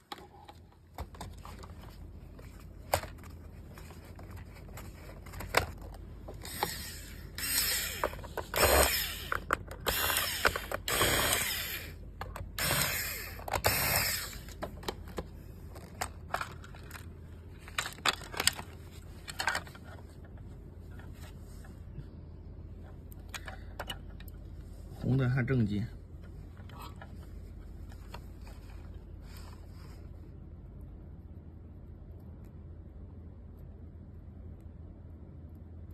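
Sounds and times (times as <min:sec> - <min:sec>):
rasping whirring tool bursts: 0:06.4 - 0:12.0, 0:12.6 - 0:14.5.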